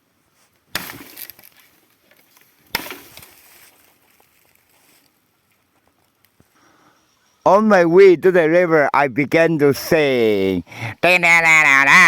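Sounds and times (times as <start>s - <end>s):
rustling: 0.3s - 6.6s
sharp cracks: 0.7s - 1.6s.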